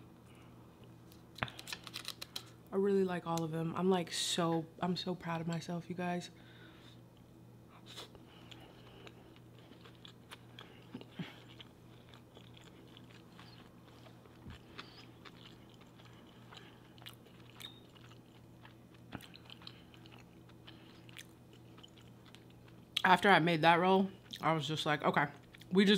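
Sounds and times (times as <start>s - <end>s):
low steady hum: 0.0s - 25.9s
wet chewing smacks: 7.9s - 22.6s.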